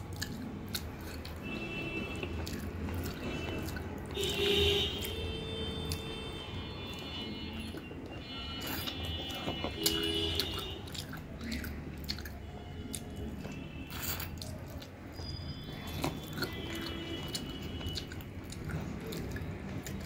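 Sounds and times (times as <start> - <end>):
wet mouth clicks and smacks: 0.0 - 1.4, 2.2 - 4.4, 8.6 - 20.0
person chewing food: 0.0 - 20.0.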